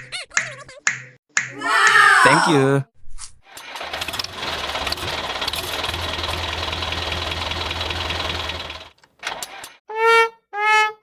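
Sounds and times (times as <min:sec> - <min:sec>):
tractor engine knocking: 0:04.4 - 0:08.9.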